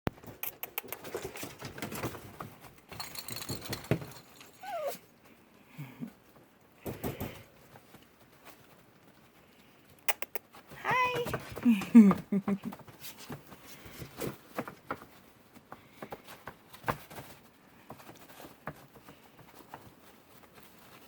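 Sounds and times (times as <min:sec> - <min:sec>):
puppies pattering and scrabbling: 0:00.1 - 0:21.0
puppy whine falling in pitch: 0:04.6 - 0:05.0.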